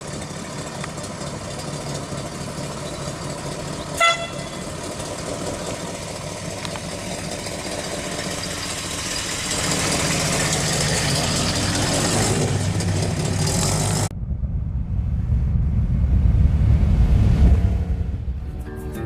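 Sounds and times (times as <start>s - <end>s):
car engine idling: 0.0s - 18.6s
car horn toot: 4.0s - 4.8s.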